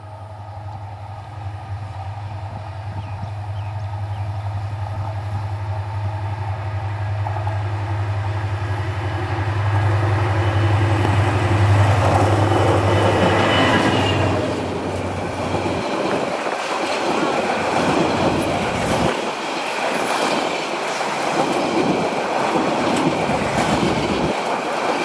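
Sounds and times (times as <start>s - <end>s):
locomotive engine drone: 0.0s - 19.9s
train wheels rattling on rails: 0.0s - 25.0s.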